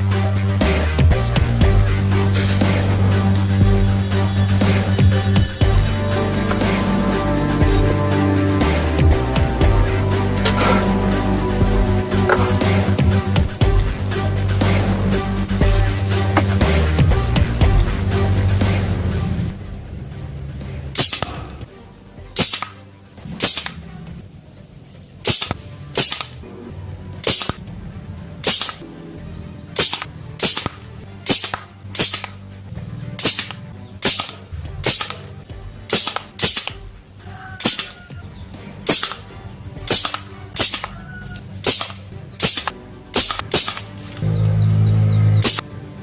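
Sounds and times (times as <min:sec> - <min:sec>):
toy gun firing sharp shots: 0:21.0 - 0:21.5, 0:22.4 - 0:23.8, 0:25.2 - 0:26.4, 0:27.2 - 0:27.6, 0:28.4 - 0:28.8, 0:29.8 - 0:32.4, 0:33.2 - 0:36.9, 0:37.6 - 0:38.0, 0:38.9 - 0:39.3, 0:39.9 - 0:44.0, 0:45.4 - 0:45.6.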